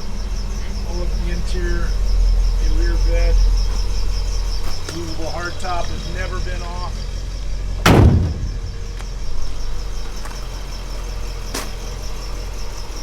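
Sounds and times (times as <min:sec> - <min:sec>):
engine idling: 0:00.0 - 0:13.0
loud thump: 0:07.8 - 0:09.3.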